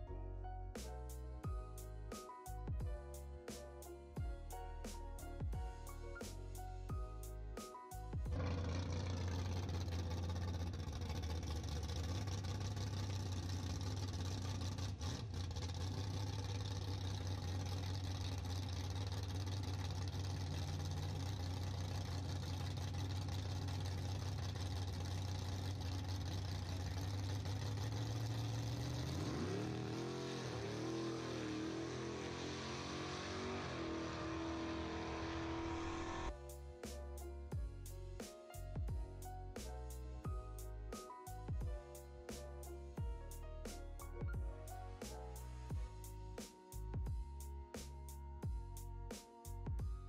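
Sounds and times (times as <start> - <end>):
engine revving and accelerating: 8.2 - 36.3
drag car engine idling: 8.3 - 29.2.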